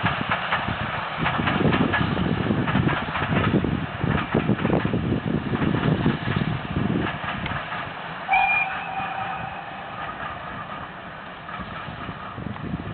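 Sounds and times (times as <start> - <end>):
steam locomotive whistle: 8.3 - 10.3.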